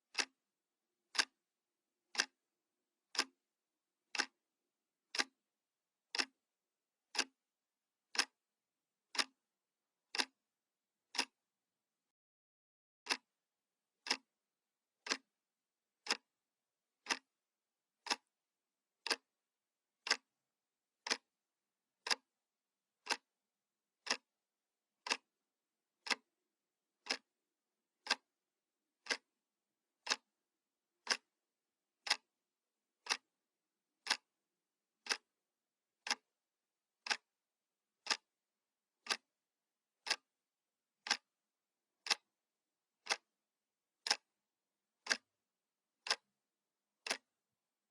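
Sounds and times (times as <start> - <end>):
analog clock ticking: 2.1 - 2.3, 4.1 - 4.3, 5.1 - 5.3, 6.1 - 6.3, 9.1 - 9.3, 14.0 - 14.2, 15.0 - 15.2, 16.0 - 16.2, 17.0 - 17.2, 18.0 - 18.3, 19.0 - 19.2, 20.0 - 20.3, 21.0 - 21.2, 22.0 - 22.2, 23.0 - 23.2, 24.0 - 24.2, 26.0 - 26.2, 27.0 - 27.2, 28.0 - 28.2, 31.0 - 31.3, 32.0 - 32.2, 33.0 - 33.2, 34.0 - 34.2, 35.0 - 35.2, 36.0 - 36.2, 37.0 - 37.2, 38.0 - 38.2, 39.0 - 39.2, 41.0 - 41.2, 42.0 - 42.2, 43.0 - 43.2, 44.0 - 44.2, 46.0 - 46.2.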